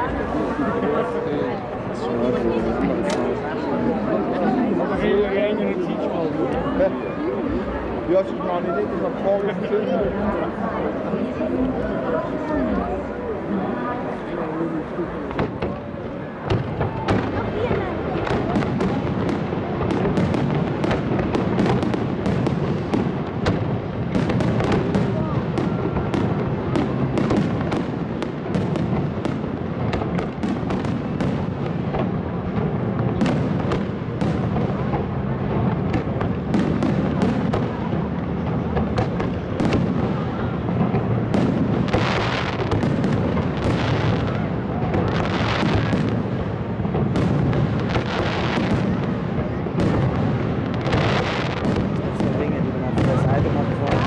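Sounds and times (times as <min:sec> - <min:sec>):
fireworks bangs and cracks: 0:00.0 - 0:54.0.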